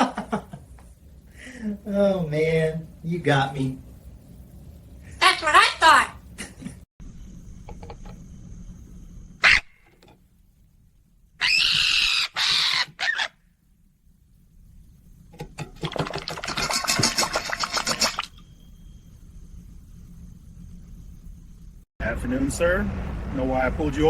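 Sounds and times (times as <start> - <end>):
parrot screeching: 9.4 - 9.8, 11.4 - 13.4.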